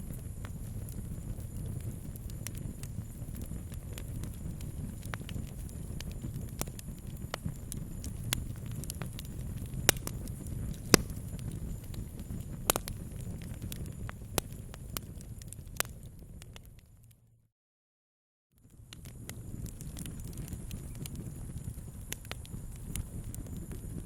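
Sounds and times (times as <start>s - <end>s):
sharp pops from fire: 0.0s - 16.9s, 18.6s - 24.0s
campfire crackling: 0.0s - 17.1s, 18.6s - 24.0s.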